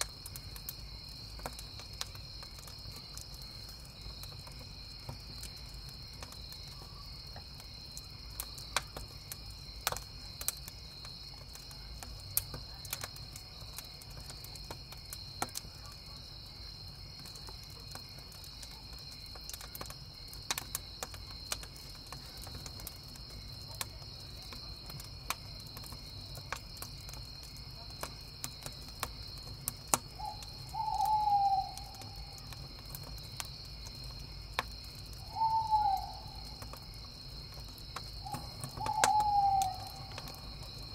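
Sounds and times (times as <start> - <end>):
crickets chirping: 0.0 - 40.9
wood fire crackling and popping: 0.0 - 40.9
owl hooting: 30.2 - 32.2, 35.2 - 36.6, 38.2 - 40.2.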